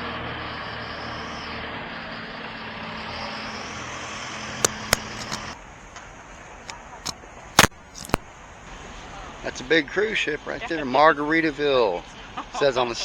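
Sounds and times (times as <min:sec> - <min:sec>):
sharp clicks: 0:04.6 - 0:05.5, 0:07.6 - 0:08.3.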